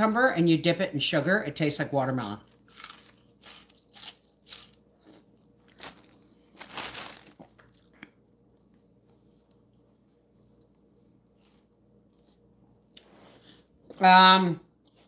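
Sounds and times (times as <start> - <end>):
crunchy bites and chewing: 2.4 - 8.1.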